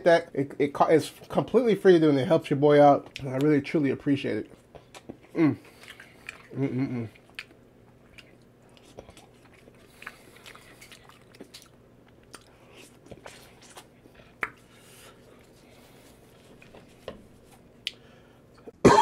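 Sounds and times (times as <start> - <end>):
person chewing food: 4.4 - 18.8.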